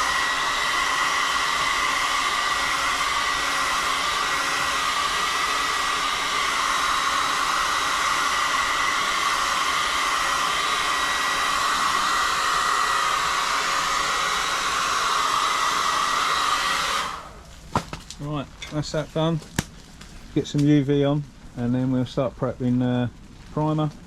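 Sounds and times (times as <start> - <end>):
heat gun blowing air: 0.0 - 17.5.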